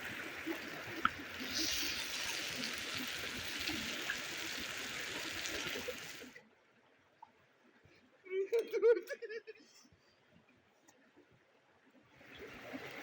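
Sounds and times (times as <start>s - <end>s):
stream running water: 0.0s - 6.5s, 12.1s - 13.0s.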